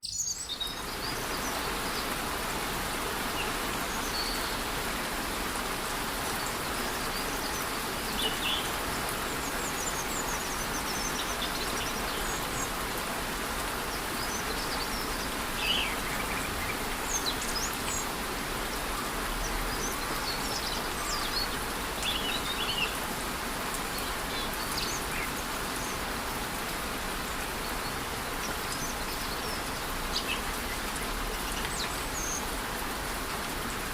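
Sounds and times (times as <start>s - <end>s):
bird chirps: 0.0s - 0.8s
light rain: 0.2s - 33.9s.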